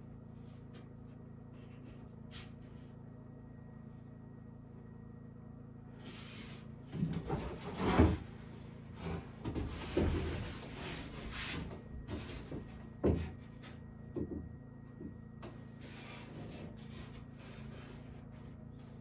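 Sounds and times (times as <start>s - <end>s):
wooden knocks and scraping: 6.9s - 15.2s.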